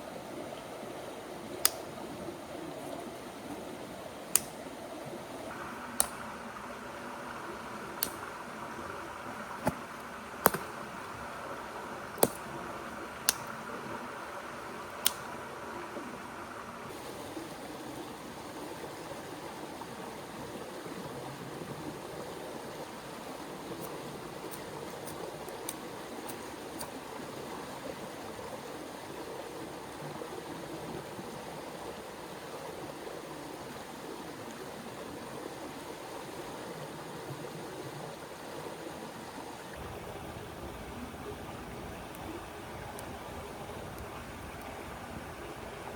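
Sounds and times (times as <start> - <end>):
river flowing: 0.0 - 45.9
faint clicks: 4.3 - 4.6.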